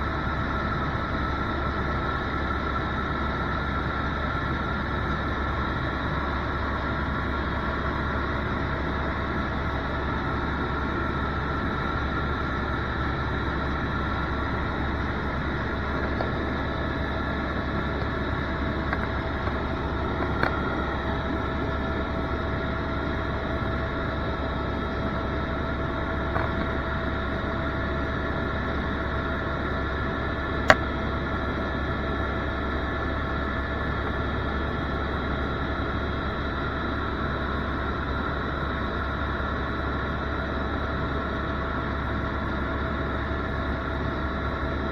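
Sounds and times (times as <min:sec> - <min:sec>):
helicopter engine and rotor noise: 0:00.0 - 0:44.9
constant tones: 0:14.0 - 0:22.3.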